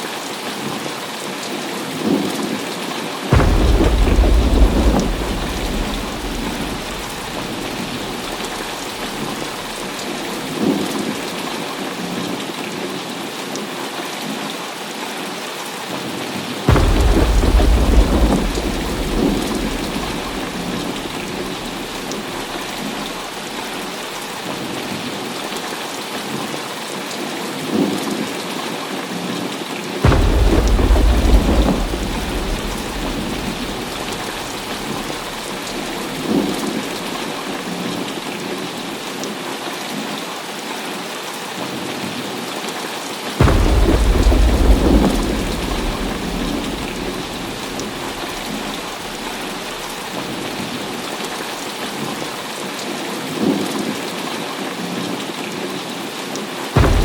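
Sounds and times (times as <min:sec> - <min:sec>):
heavy rain falling: 0:00.0 - 0:57.0
thunder clap and rumble: 0:03.3 - 0:11.3, 0:16.7 - 0:24.3, 0:30.0 - 0:38.4, 0:43.4 - 0:52.4, 0:56.8 - 0:57.0.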